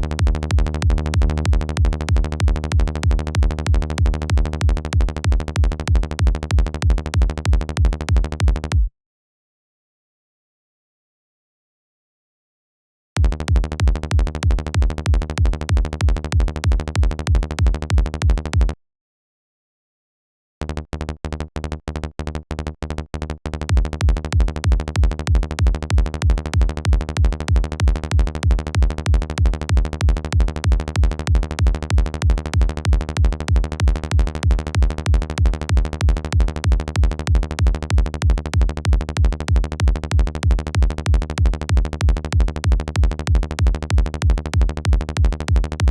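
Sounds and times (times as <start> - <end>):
electronic kick drum and synth bass: 0.0 - 8.9, 13.2 - 18.8, 23.5 - 45.9.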